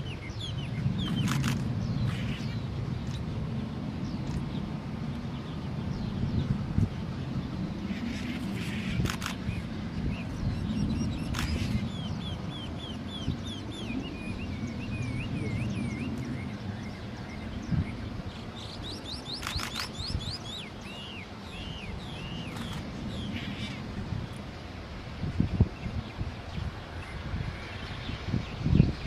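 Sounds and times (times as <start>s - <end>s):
songbird calling: 0.0s - 3.2s, 7.9s - 24.0s
sharp clicks: 19.3s - 20.1s.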